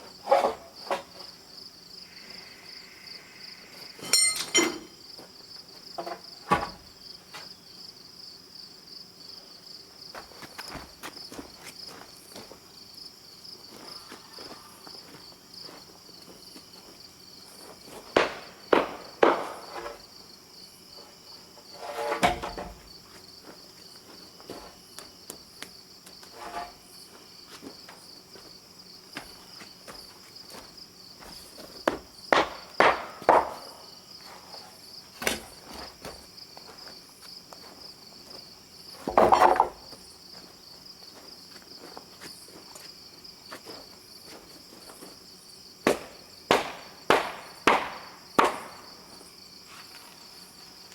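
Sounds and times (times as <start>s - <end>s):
high-pitched insect chirping: 1.5s - 5.3s
knocks and thumps: 6.0s - 6.9s, 18.1s - 20.0s, 21.8s - 22.9s, 31.9s - 33.8s, 39.0s - 39.9s.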